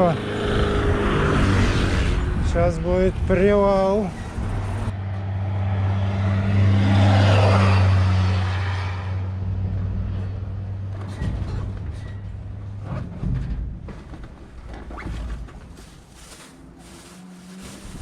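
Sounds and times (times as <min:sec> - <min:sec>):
vehicle passing by: 0:00.0 - 0:02.5, 0:04.1 - 0:10.9.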